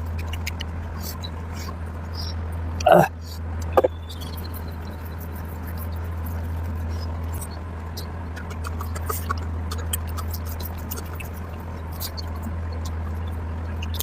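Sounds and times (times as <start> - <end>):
steady low hum: 0.0 - 14.0
chewing with wet mouth smacks: 3.6 - 14.0.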